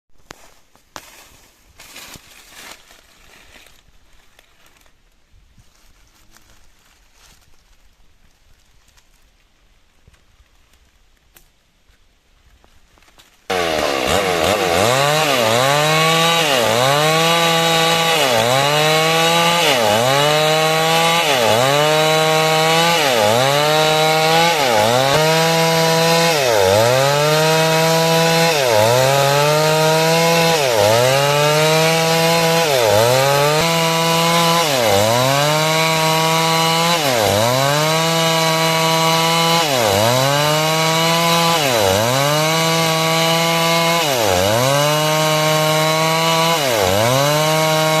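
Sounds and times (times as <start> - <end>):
chainsaw cutting wood: 13.5 - 48.0.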